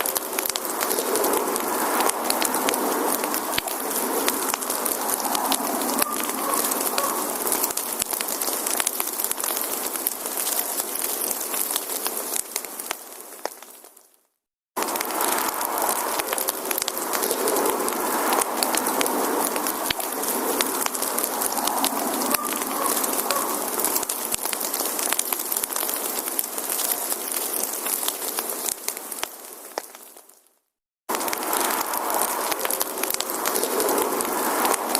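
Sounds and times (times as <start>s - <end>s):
wood fire crackling and popping: 0.0s - 14.2s, 14.8s - 34.9s.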